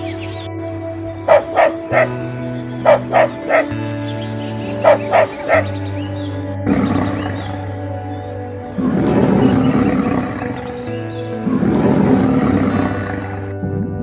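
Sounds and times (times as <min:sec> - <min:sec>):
background music: 0:00.0 - 0:14.0
dog barking: 0:01.3 - 0:02.2, 0:02.8 - 0:03.8, 0:04.7 - 0:05.8.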